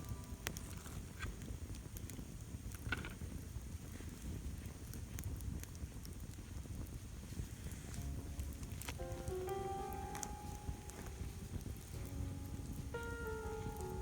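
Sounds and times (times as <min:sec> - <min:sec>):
campfire crackling: 0:00.0 - 0:14.0
low fire rumble: 0:00.0 - 0:14.0.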